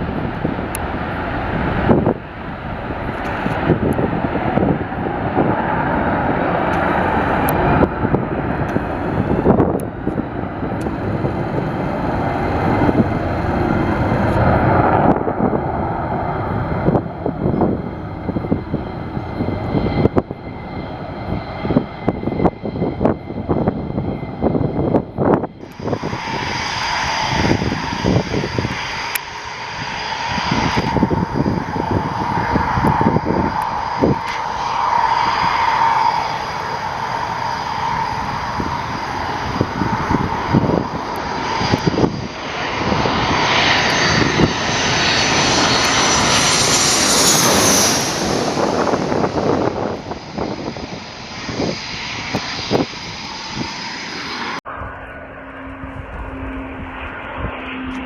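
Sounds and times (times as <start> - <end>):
jet engines roaring: 0.0 - 58.0.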